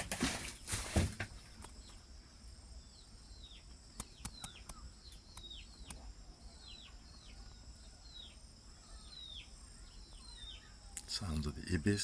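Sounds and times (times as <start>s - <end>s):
faint bird chirping: 0.4s - 12.0s
sharp clicks: 4.0s - 6.0s.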